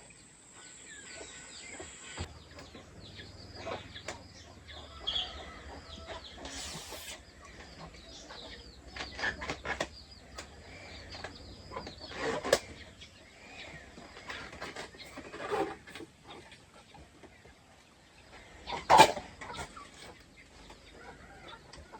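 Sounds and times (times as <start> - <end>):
chickens peeping and clucking: 0.0 - 21.9.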